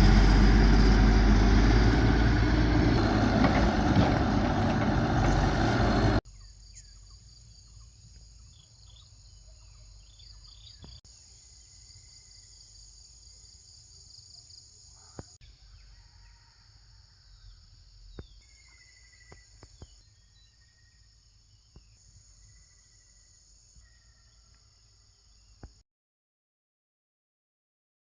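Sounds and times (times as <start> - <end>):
insect chorus: 5.2 - 25.8.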